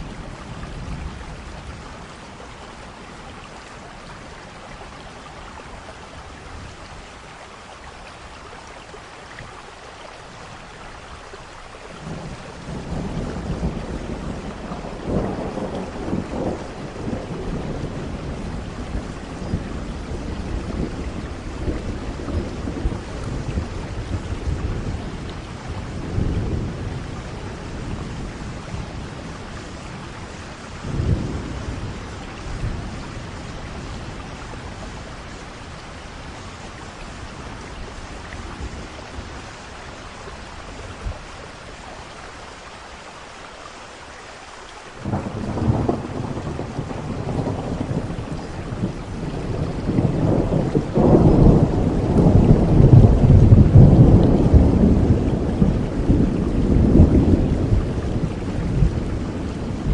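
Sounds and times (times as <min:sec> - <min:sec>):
steady rain: 0:00.0 - 0:59.9
rolling thunder: 0:12.0 - 0:39.8, 0:45.0 - 0:59.9.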